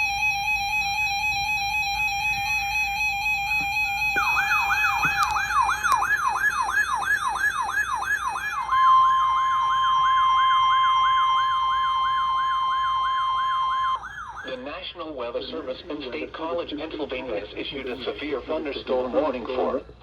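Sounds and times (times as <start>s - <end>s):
steady lower siren tone: 0.0s - 16.6s
steady alarm tone: 0.0s - 18.6s
siren falling sweeps: 0.6s - 14.8s.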